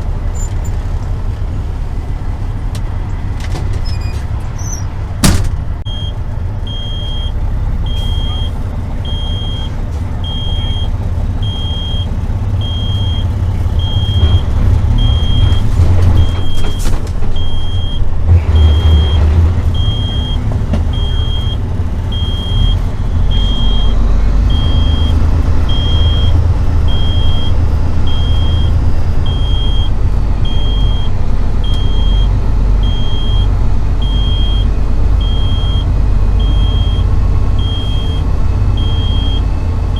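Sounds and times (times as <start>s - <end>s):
truck engine rumbling: 0.0s - 39.9s
repeating high beep: 5.9s - 9.7s, 10.3s - 15.6s, 19.8s - 20.4s, 21.0s - 29.9s, 30.5s - 31.1s, 31.7s - 38.2s, 38.8s - 39.6s.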